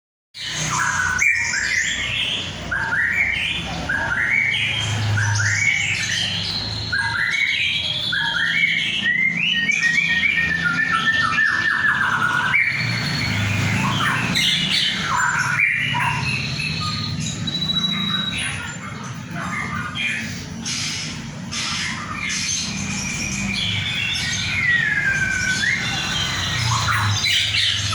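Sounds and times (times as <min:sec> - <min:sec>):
songbird chirping and singing: 0:00.4 - 0:27.9.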